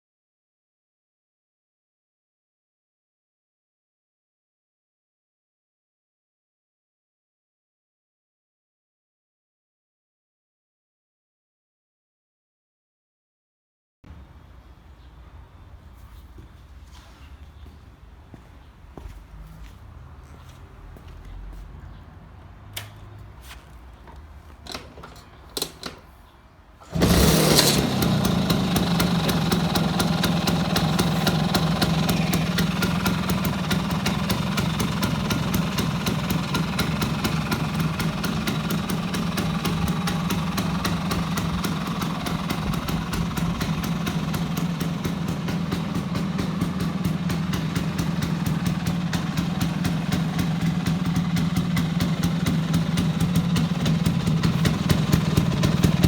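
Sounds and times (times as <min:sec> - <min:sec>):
scooter engine starting and idling: 0:22.7 - 0:56.0.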